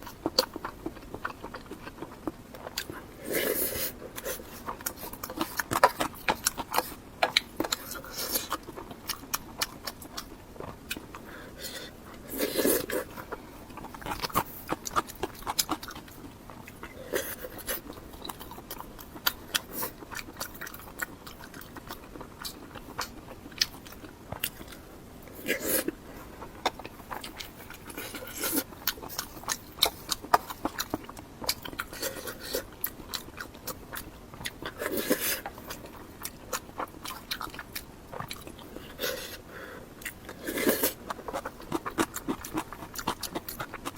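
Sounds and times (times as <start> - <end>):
person chewing food: 0.0 - 43.9.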